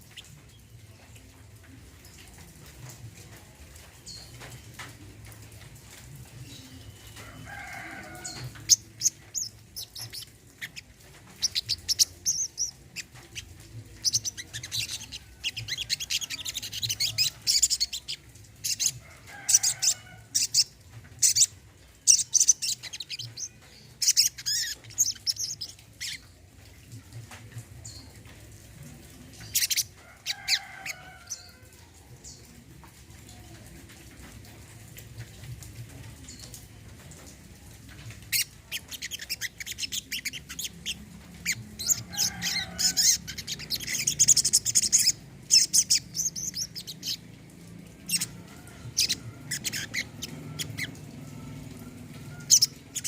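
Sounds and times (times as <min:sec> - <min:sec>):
bird high chirps and trills: 0:06.5 - 0:26.3, 0:38.3 - 0:47.2, 0:48.0 - 0:53.0.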